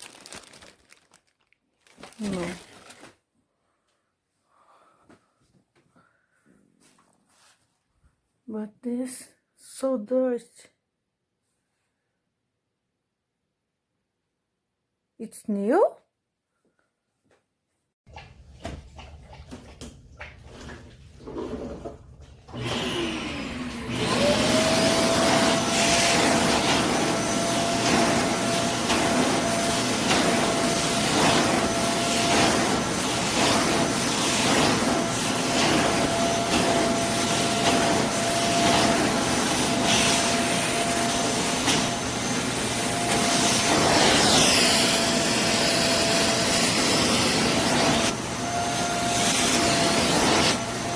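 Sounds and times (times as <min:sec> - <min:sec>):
vacuum motor whining: 0:21.3 - 0:50.9.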